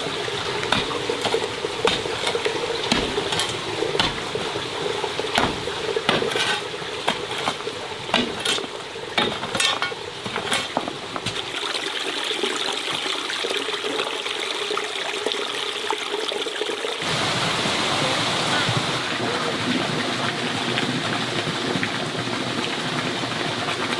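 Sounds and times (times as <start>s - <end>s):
rushing water: 0.0s - 23.9s
clinks and knocks: 0.7s - 4.2s, 5.3s - 11.4s.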